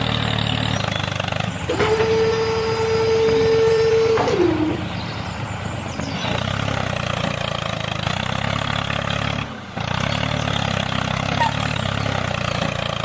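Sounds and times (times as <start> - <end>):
motor running mechanically: 1.6 - 6.3
motor whine falling in pitch: 1.7 - 5.2.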